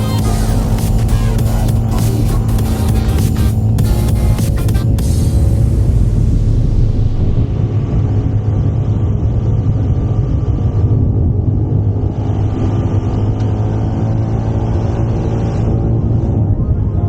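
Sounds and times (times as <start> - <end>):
scooter engine running: 0.0 - 7.0.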